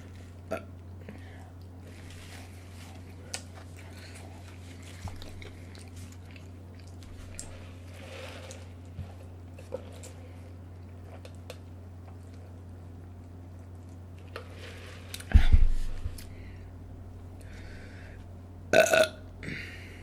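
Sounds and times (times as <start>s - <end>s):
dull thump: 15.3s - 16.1s
woman burping: 18.7s - 19.6s.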